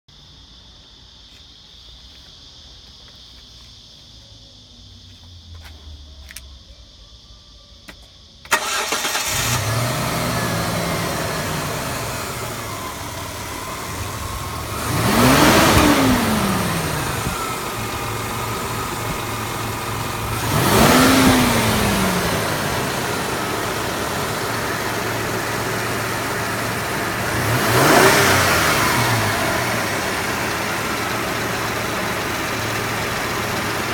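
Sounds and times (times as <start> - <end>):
car engine starting and idling: 7.8 - 33.9
engine revving: 8.5 - 33.9.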